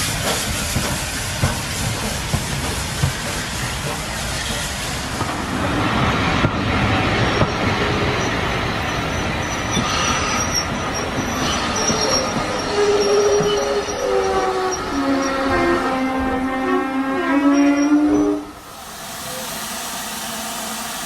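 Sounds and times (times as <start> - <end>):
train rumbling on rails: 0.0 - 21.0
metallic wheel squeal: 9.1 - 15.8.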